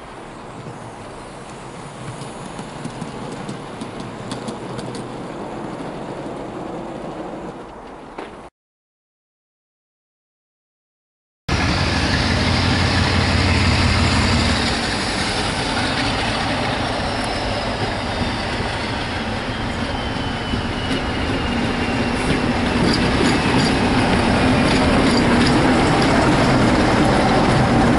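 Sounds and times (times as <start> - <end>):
wheel clicks over rail joints: 2.0 - 5.2
diesel locomotive engine drumming: 11.5 - 27.9.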